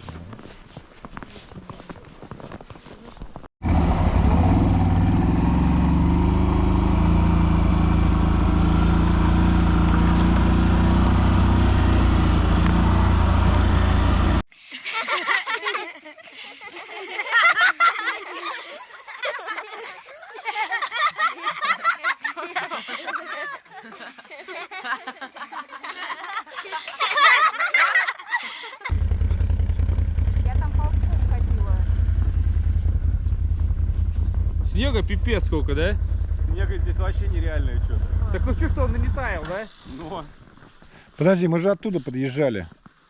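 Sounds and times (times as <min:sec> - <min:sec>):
quad bike engine running: 0:03.6 - 0:14.4, 0:28.9 - 0:39.7
people laughing: 0:14.7 - 0:28.9.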